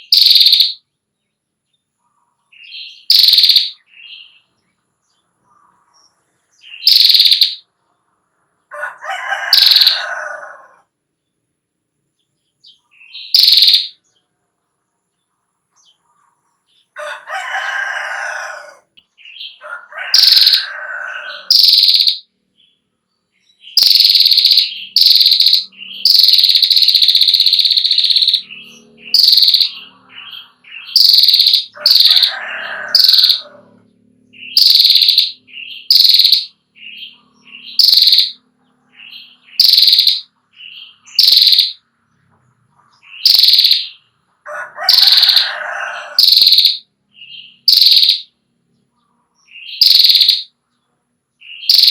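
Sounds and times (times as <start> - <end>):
bird rattling trill: 0.0 - 0.8, 3.1 - 3.8, 6.8 - 7.6, 9.4 - 10.1, 13.3 - 14.0, 20.1 - 20.8, 21.4 - 22.2, 23.8 - 28.5, 29.1 - 29.8, 30.9 - 33.6, 34.5 - 36.5, 37.7 - 38.4, 39.6 - 40.3, 41.1 - 41.8, 43.2 - 43.9, 44.8 - 46.8, 47.7 - 48.3, 49.8 - 50.5
lower-pitched bird calls: 0.0 - 0.9, 2.0 - 7.7, 8.6 - 10.9, 12.6 - 14.2, 15.8 - 22.3, 23.4 - 50.6, 51.4 - 51.9.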